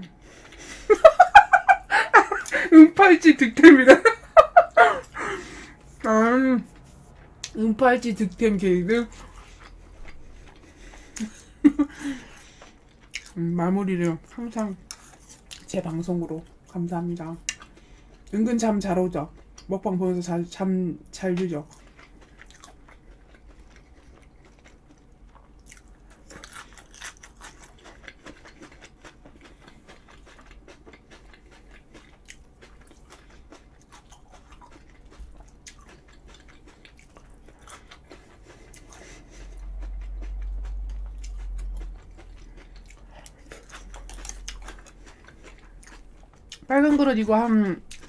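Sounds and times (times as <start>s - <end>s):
chewing and crunching food: 0.1s - 2.7s, 4.2s - 48.0s
low rumble: 38.8s - 45.3s.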